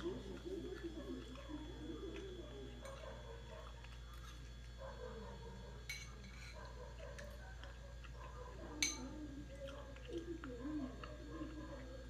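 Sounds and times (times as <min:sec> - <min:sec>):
person chewing with clicks: 0:00.0 - 0:05.2, 0:06.0 - 0:12.0.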